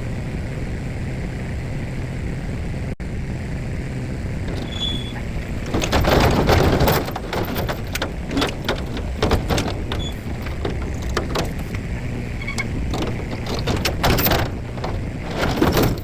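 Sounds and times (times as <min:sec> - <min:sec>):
crackling: 0:04.4 - 0:16.0.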